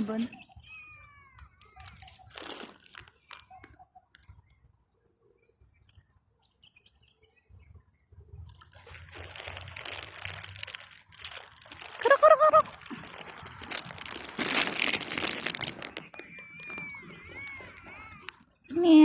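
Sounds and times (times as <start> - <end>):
potato chips crackling and crunching: 0.6 - 4.6, 5.8 - 6.2, 8.5 - 19.0.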